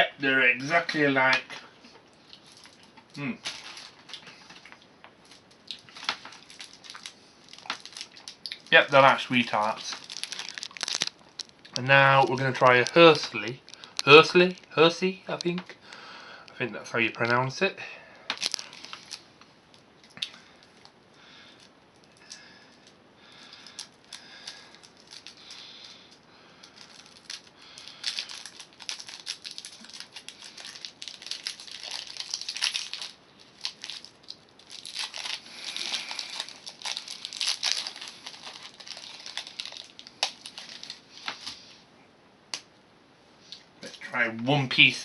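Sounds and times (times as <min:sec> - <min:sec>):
wrapper crinkling and tearing: 0:02.2 - 0:15.6, 0:18.3 - 0:19.3, 0:21.6 - 0:41.7.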